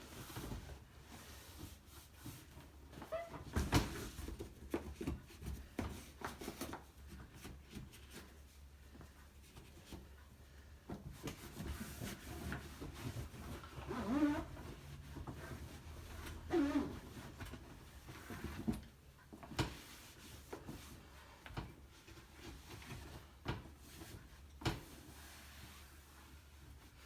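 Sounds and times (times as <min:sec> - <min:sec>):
rag wiping dishwasher inside: 0:09.5 - 0:27.0.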